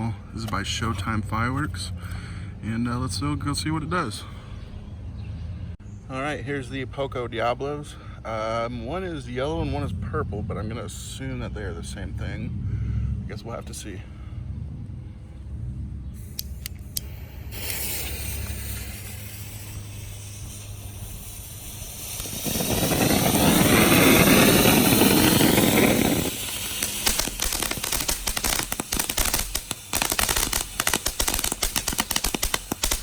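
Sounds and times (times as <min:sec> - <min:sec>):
firework fountain spraying hiss: 0:16.2 - 0:33.0
sharp clicks: 0:16.3 - 0:18.2, 0:25.4 - 0:33.0
dense rapid crackling: 0:17.5 - 0:33.0.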